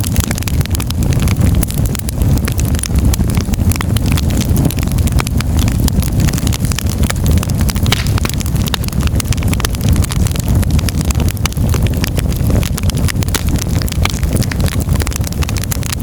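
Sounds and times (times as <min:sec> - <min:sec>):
fire popping and snapping: 0:00.0 - 0:16.0
low rumble of flames: 0:00.0 - 0:16.0.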